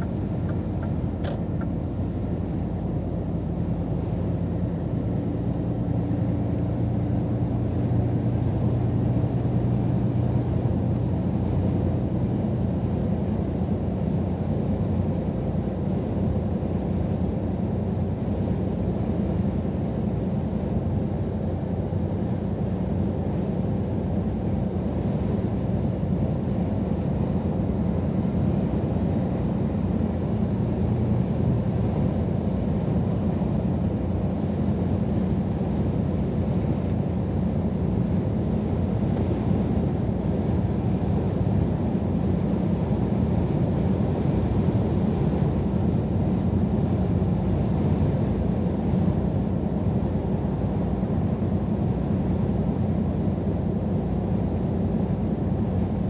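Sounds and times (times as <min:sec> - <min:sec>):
faint engine tones: 0:00.0 - 0:13.7
road noise: 0:00.0 - 0:13.7
truck engine drone: 0:00.0 - 0:15.2.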